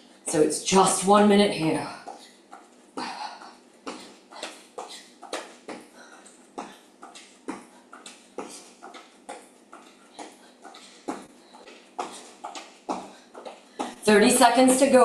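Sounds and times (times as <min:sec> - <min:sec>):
hard breathing: 0:02.0 - 0:14.0.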